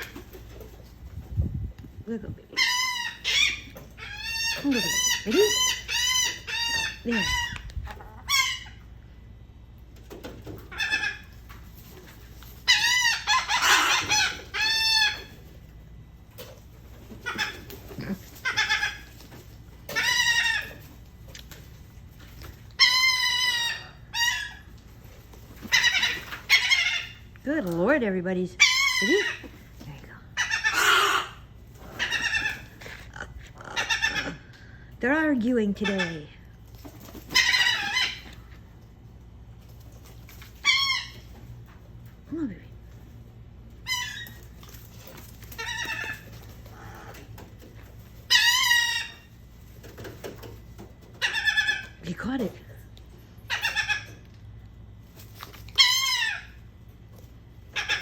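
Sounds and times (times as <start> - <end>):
seagulls calling: 12.6 - 15.5, 25.6 - 27.3, 30.4 - 34.7.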